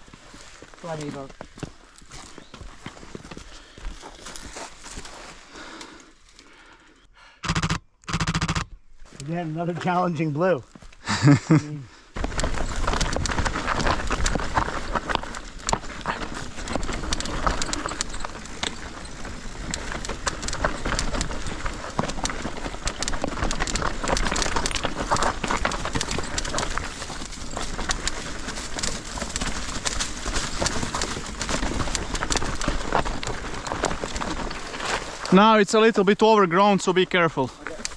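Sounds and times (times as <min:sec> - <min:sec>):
mountain bike rattling over stones: 0:12.2 - 0:35.6.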